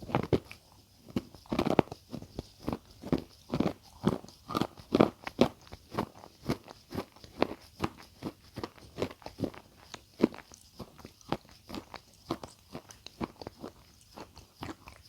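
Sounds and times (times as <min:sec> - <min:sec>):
chewing crunchy food: 0:00.0 - 0:15.0.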